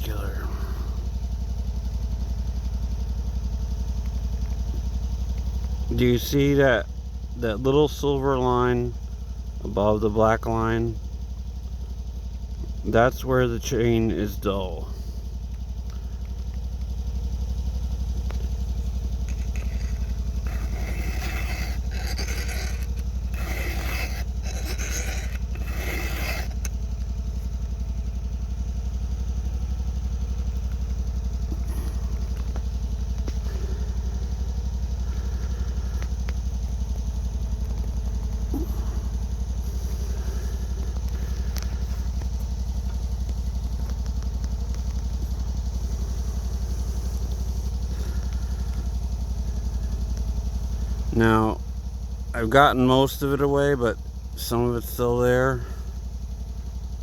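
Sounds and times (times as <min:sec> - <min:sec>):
steady low drone: 0:12.2 - 0:51.8
file scraping chainsaw chain: 0:18.4 - 0:27.5.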